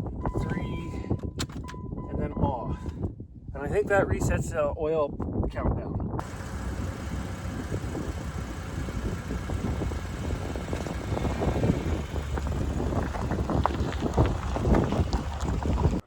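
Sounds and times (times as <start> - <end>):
knocks and rattles: 6.2 - 16.0
vehicle engine rumbling: 6.2 - 16.0.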